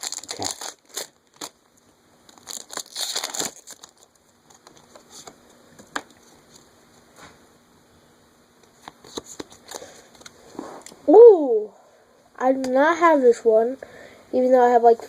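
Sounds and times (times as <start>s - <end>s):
foil wrapper crinkling: 0.0s - 1.6s, 2.3s - 5.3s.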